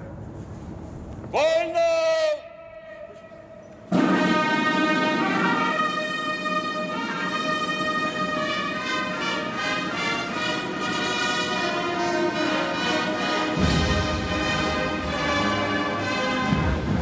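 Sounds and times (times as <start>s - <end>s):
brass band playing: 2.6s - 17.0s
low heavy drum or brass entry: 2.8s - 7.0s, 13.4s - 17.0s.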